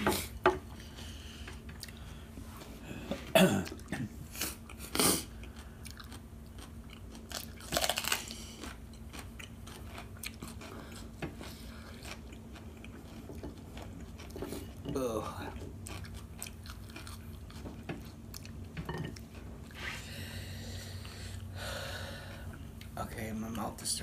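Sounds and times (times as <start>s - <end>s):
peppers crunching when bitten: 4.4s - 11.1s
chewing: 4.6s - 19.5s.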